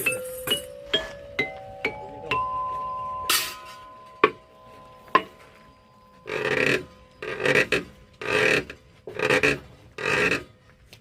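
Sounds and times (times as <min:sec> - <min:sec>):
struck ringing notes: 0:00.0 - 0:10.8
instrument scrape: 0:04.6 - 0:10.6.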